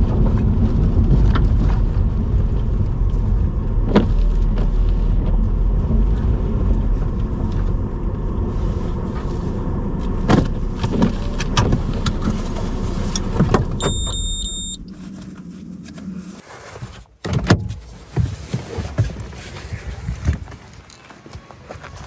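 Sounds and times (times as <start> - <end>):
car road and engine rumble: 0.0 - 20.6
short electronic beep: 13.8 - 14.9.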